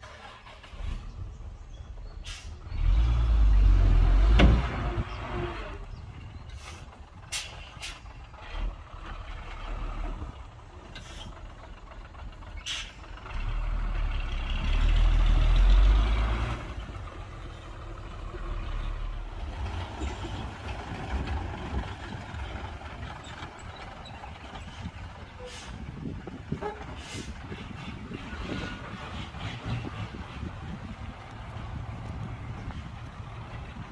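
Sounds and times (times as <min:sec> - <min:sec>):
heavy diesel engines rumbling: 0:00.0 - 0:33.9
short sharp hisses: 0:02.2 - 0:02.6, 0:06.6 - 0:08.0.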